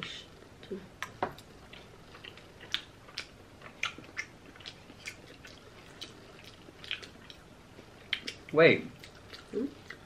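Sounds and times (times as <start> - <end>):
wet chewing clicks and smacks: 1.0 - 10.0.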